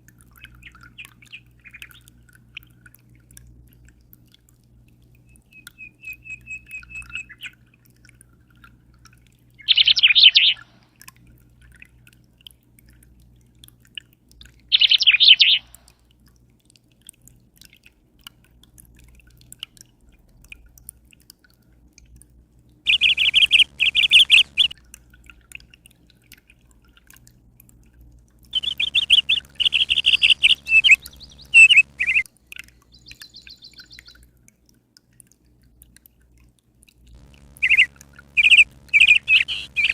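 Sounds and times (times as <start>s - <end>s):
songbird trilling: 9.6s - 10.6s, 14.8s - 15.7s, 22.9s - 24.8s, 28.6s - 32.2s, 37.3s - 39.9s
faint low hum: 22.9s - 24.8s, 28.5s - 32.2s, 37.1s - 39.9s.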